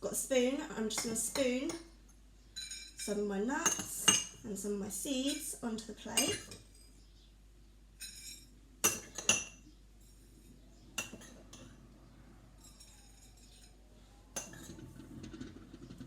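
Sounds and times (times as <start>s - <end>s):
spoon clinking against plate: 2.6s - 4.4s, 8.0s - 10.2s, 11.0s - 11.7s, 12.6s - 13.8s, 14.4s - 14.8s.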